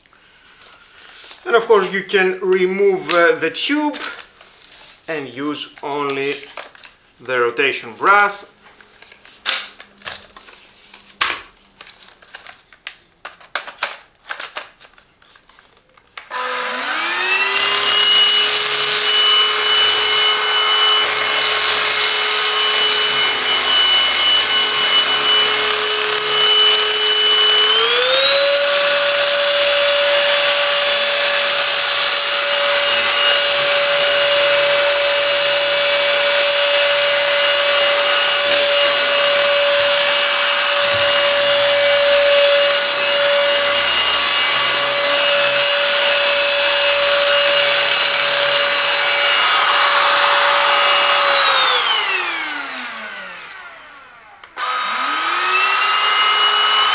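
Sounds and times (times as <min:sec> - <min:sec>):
plastic parts clicking: 0:12.3 - 0:15.7
vacuum cleaner motor whine: 0:16.2 - 0:56.9.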